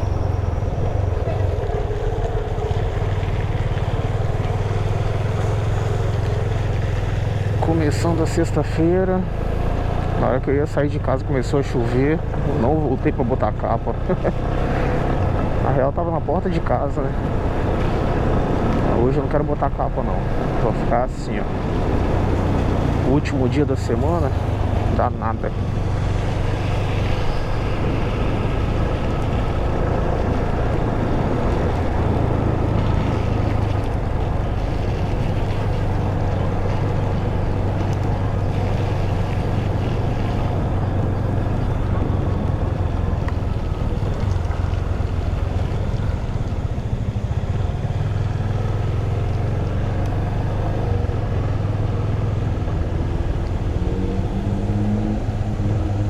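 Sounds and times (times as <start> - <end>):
motorcycle engine running: 0.0 - 10.3, 17.0 - 56.0
wind rushing over microphone: 14.6 - 56.0.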